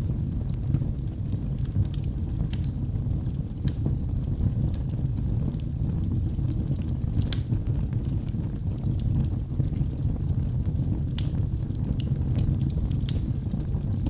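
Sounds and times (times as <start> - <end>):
burning wood crackling and popping: 0.0 - 14.0
low rumble of flames: 0.0 - 14.0.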